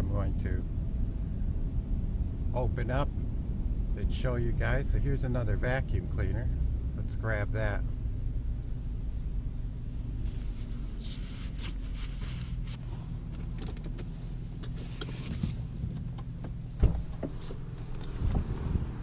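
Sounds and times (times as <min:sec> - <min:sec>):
vehicle engine idling: 0:00.0 - 0:19.0
sharp thump: 0:16.8 - 0:17.4.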